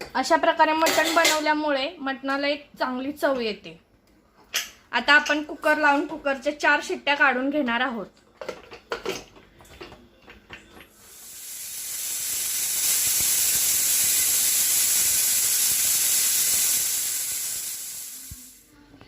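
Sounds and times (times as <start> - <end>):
pressure cooker whistle: 11.1 - 18.6.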